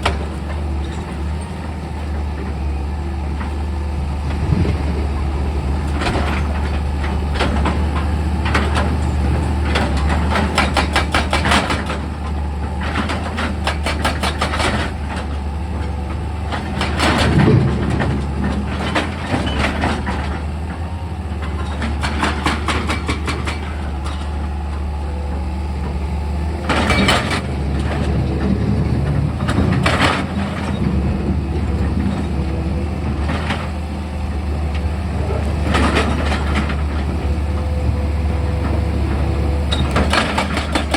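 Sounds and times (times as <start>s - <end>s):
diesel engine running: 0.0s - 40.9s
heavy metal clanks: 21.4s - 40.9s.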